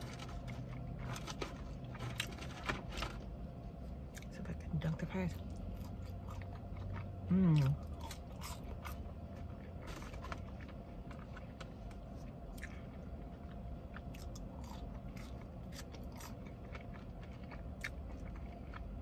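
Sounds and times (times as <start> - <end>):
low hum: 0.0 - 19.0
person chewing food: 5.4 - 19.0.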